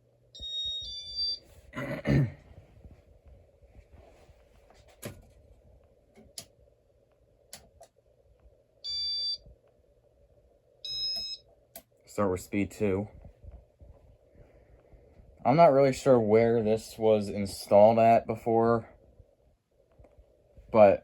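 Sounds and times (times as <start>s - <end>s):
faint steady hum: 0.0s - 21.0s
short electronic beeps: 8.9s - 9.4s, 10.9s - 11.4s.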